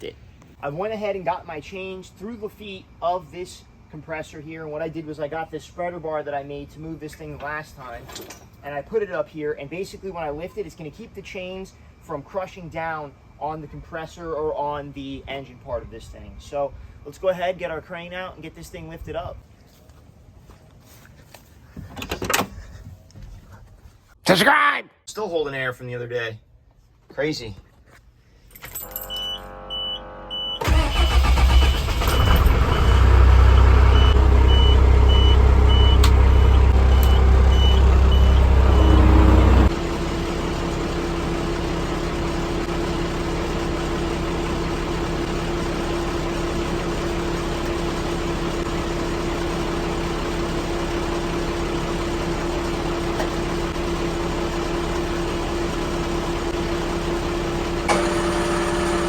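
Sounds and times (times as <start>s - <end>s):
truck engine starting and running: 28.8s - 59.0s.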